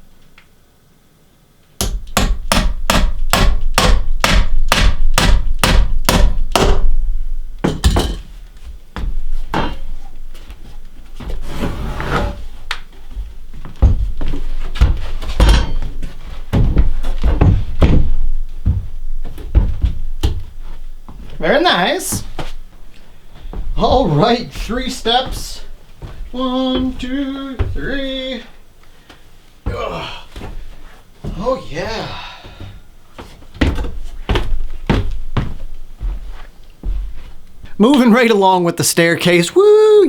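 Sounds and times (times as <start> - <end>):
hammer driving nails into wood: 1.8 - 6.9
timber scraping: 11.3 - 12.6.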